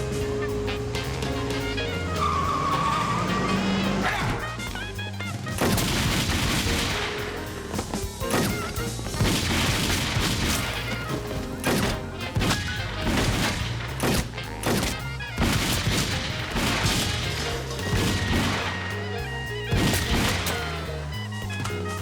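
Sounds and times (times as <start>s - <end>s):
dramatic background music: 0.0s - 22.0s
crashes and impacts: 5.5s - 18.8s.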